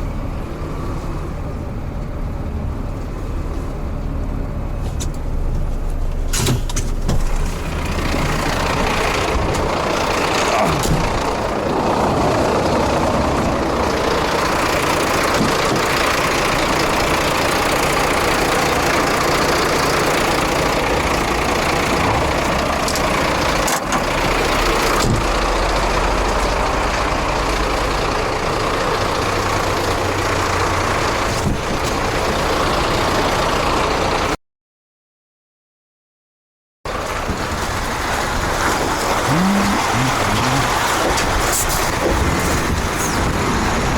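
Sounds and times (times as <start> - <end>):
diesel truck engine running: 0.0 - 34.4, 36.9 - 43.9.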